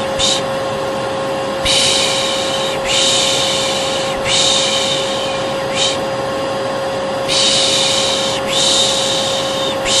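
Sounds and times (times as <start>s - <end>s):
hair dryer humming: 0.0s - 0.6s, 1.5s - 10.0s
person shushing: 7.3s - 10.0s.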